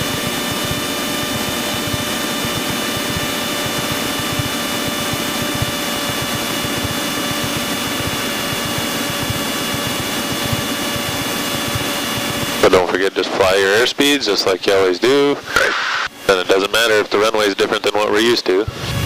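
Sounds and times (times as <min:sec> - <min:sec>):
propeller plane engine droning: 0:00.0 - 0:19.0.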